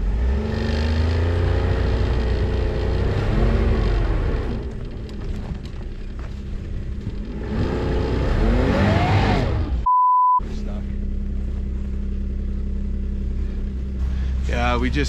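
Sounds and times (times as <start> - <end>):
snowmobile engine under load: 0.0 - 15.0.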